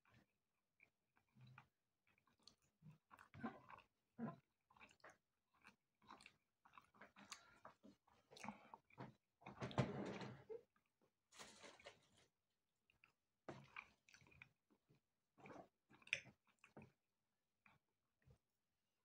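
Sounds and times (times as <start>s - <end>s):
close-up chewing and biting: 0.8s - 9.2s, 13.0s - 14.6s.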